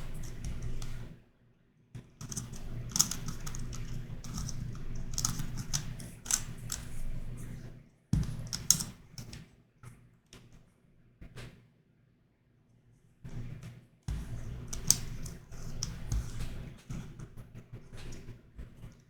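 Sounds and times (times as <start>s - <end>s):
plastic puzzle pieces clicking: 2.2s - 6.9s, 8.5s - 8.9s, 14.7s - 16.4s.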